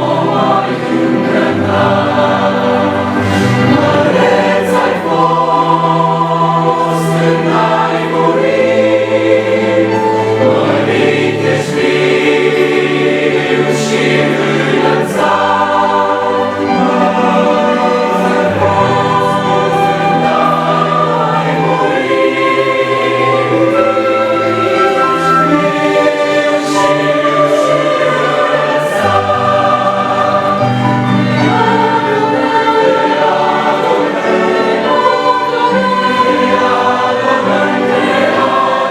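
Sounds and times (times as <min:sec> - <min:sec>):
choir singing worship song: 0:00.0 - 0:38.9
instrumental accompaniment: 0:00.0 - 0:38.9
sustained bass line: 0:03.1 - 0:04.6.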